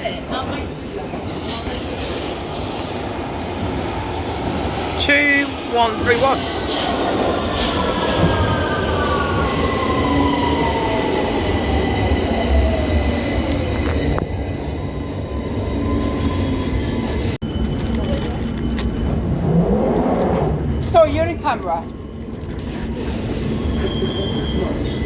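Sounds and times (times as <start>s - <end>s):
wheels rumbling on rails: 16.0s - 25.0s.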